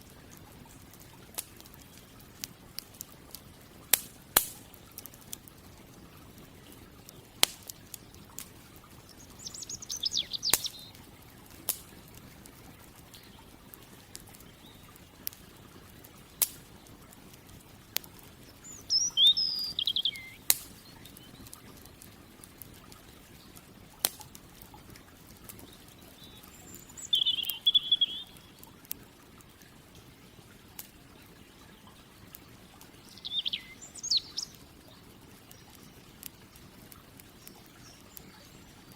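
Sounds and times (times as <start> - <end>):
campfire crackling and popping: 0.0 - 38.9
songbird trilling: 9.1 - 11.0, 18.5 - 21.5, 25.9 - 28.6, 33.0 - 34.6.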